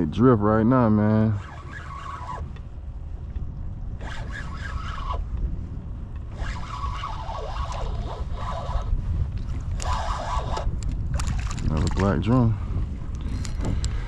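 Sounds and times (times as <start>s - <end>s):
wind on microphone: 0.0s - 14.0s
high wavering warbling whine: 0.7s - 2.5s.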